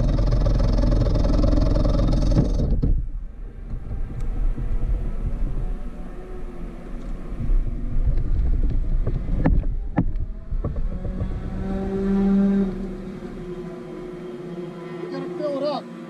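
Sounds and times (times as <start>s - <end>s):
wind noise on microphone: 0.0s - 13.4s
two-stroke kart engine: 0.0s - 16.0s.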